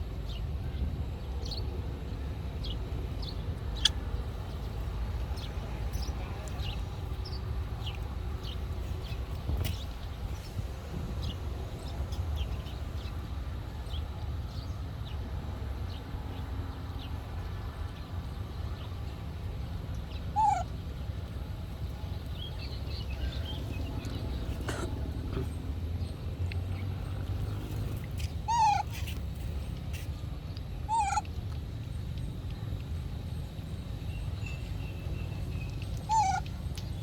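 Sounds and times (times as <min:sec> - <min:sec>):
pitch-bending animal cry: 0:20.4 - 0:20.6, 0:28.5 - 0:28.9, 0:30.9 - 0:31.3, 0:36.1 - 0:36.5.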